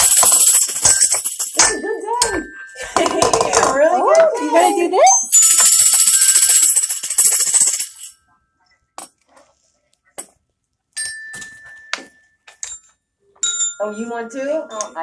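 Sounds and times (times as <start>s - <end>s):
jingling toy rattle: 0.0s - 3.9s, 5.2s - 8.2s.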